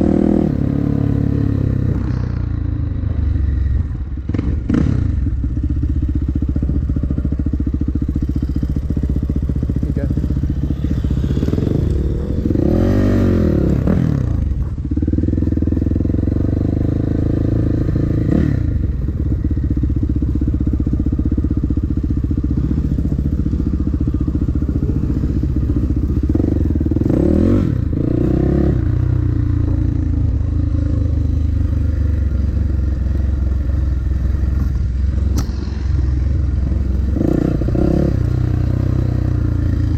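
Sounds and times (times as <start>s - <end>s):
dirt bike engine revving: 8.2s - 39.9s.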